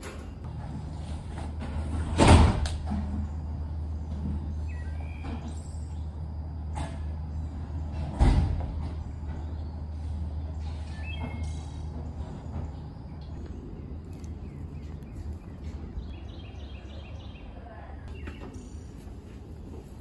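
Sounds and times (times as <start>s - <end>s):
birds chirping: 3.5s - 6.6s, 8.9s - 20.0s.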